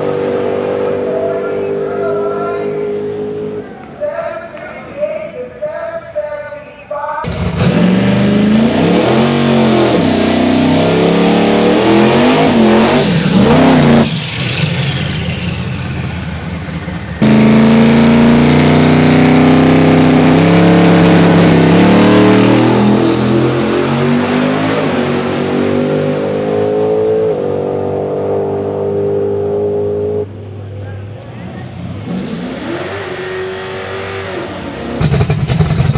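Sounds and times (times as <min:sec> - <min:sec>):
drag car engine revving: 0:00.0 - 0:03.9, 0:07.2 - 0:35.9.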